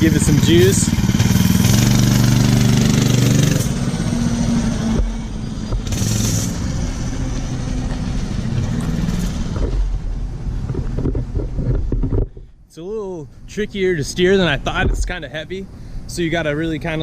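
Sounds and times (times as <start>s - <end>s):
minibike engine revving: 0.0s - 11.6s.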